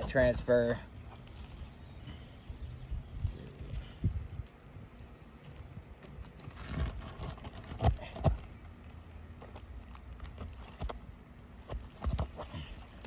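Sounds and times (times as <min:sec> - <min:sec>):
tool scraping shingle: 0:06.1 - 0:08.6, 0:11.6 - 0:13.0.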